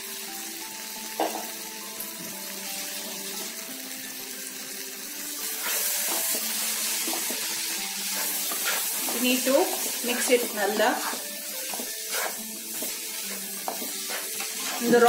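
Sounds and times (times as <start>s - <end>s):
faint background music: 0.0s - 15.0s
masala sizzling in oil: 0.0s - 15.0s
spatula stirring and scraping: 5.4s - 15.0s.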